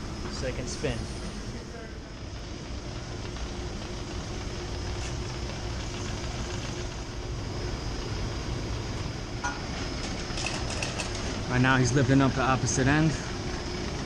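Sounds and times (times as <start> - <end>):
industrial machinery hum: 0.0 - 14.0.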